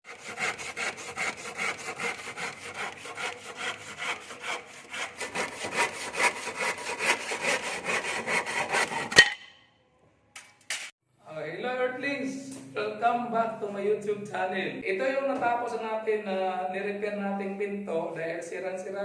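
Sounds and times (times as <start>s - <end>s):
hand saw cutting wood: 0.0s - 9.3s.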